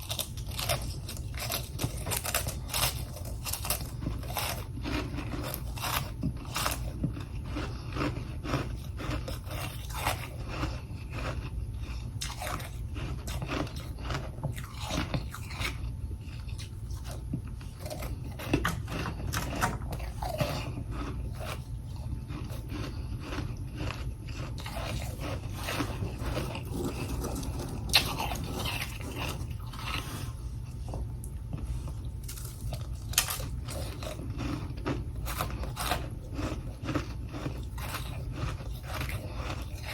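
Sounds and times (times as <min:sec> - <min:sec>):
crunching ice: 0:00.0 - 0:15.8, 0:17.8 - 0:30.2, 0:32.3 - 0:39.9
steady low hum: 0:00.0 - 0:39.9.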